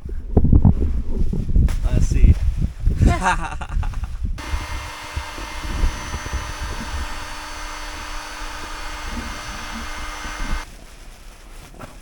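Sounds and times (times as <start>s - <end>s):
electric air pump whirring: 4.4s - 10.7s.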